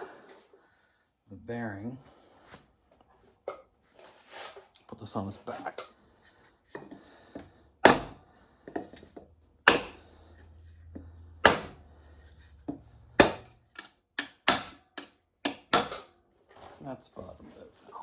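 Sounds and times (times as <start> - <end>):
hammer striking metal: 7.8 - 8.2, 9.6 - 10.1, 11.4 - 11.9, 13.2 - 16.2.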